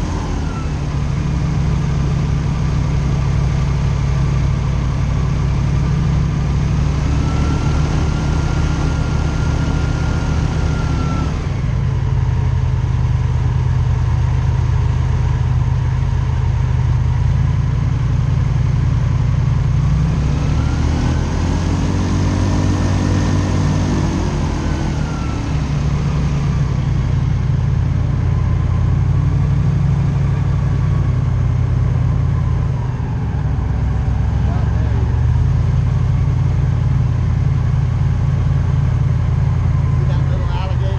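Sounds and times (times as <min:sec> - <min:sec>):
airboat engine and propeller: 0:00.0 - 0:17.6, 0:19.7 - 0:28.0.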